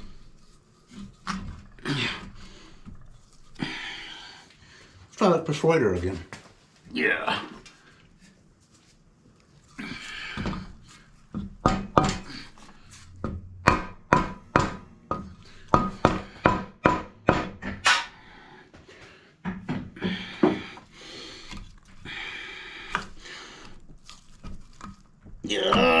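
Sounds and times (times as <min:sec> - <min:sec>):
hammer striking metal: 0:13.6 - 0:18.2.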